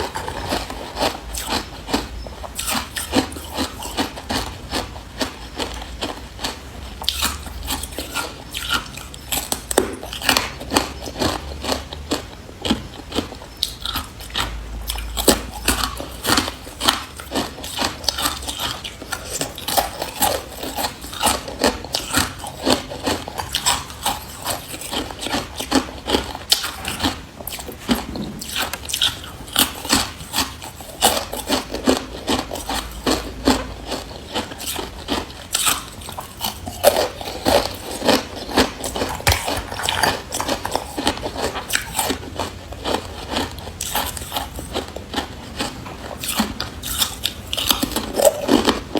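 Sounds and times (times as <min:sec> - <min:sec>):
person crunching ice: 0:28.2 - 0:42.2.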